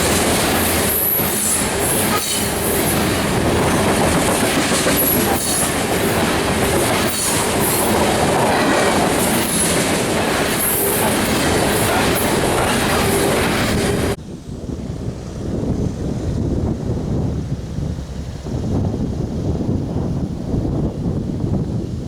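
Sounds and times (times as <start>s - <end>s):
train wheels squealing: 0.0s - 3.8s
freight train wheels clattering: 0.0s - 14.2s
wind rumble on microphone: 0.0s - 22.0s.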